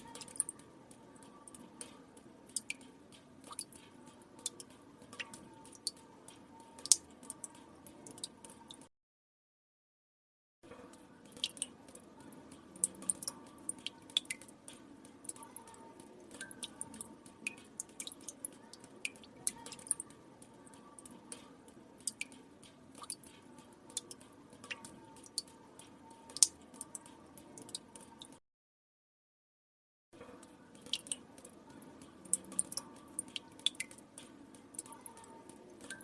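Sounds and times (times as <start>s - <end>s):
water drops plinking into water: 0.0s - 8.9s, 10.9s - 28.4s, 30.2s - 36.0s.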